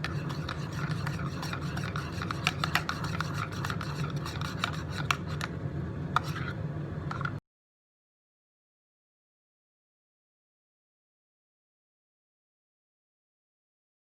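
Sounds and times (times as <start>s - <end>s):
rubbing and scraping: 0.0s - 5.5s, 6.2s - 7.4s
steady low hum: 0.0s - 7.4s.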